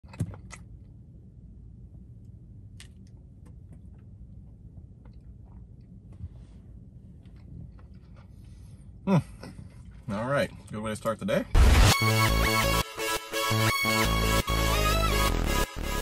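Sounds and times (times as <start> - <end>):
low steady rumble: 0.0 - 11.6
person chewing: 3.9 - 6.1, 7.1 - 9.0.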